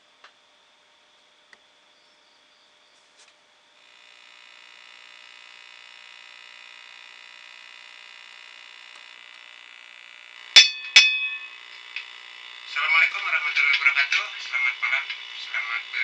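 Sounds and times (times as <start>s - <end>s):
electronic hum of high tones: 0.1s - 16.0s
sharp clicks with ring: 10.6s - 12.0s.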